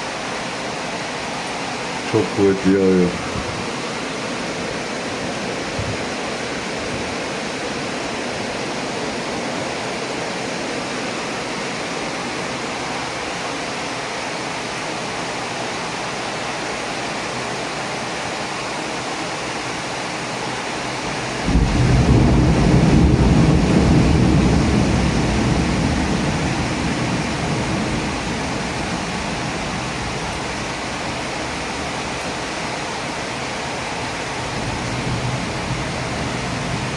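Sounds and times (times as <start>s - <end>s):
heavy rain falling: 0.0s - 36.9s
thunder rumble: 21.4s - 30.8s.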